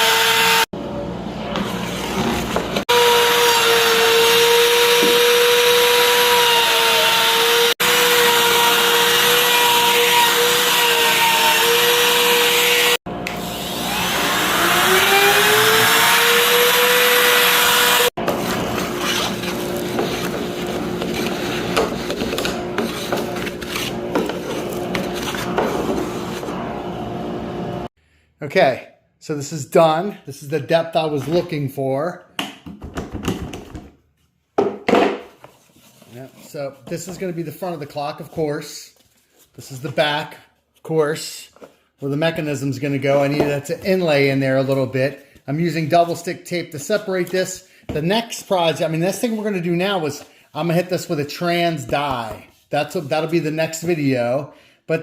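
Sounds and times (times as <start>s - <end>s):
electric wood router whining: 0.0s - 0.7s, 2.6s - 18.7s.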